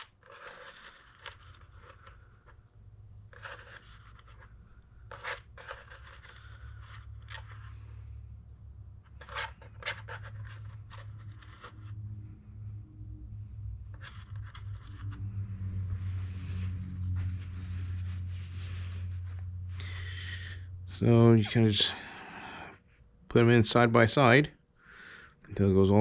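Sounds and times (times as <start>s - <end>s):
small clicks and scrapes of rollers: 0.0s - 2.6s, 3.3s - 7.8s
steady low hum: 0.0s - 26.0s.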